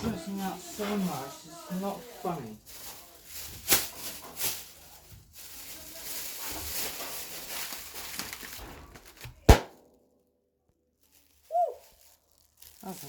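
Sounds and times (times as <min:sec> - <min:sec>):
rustling: 0:00.2 - 0:09.9.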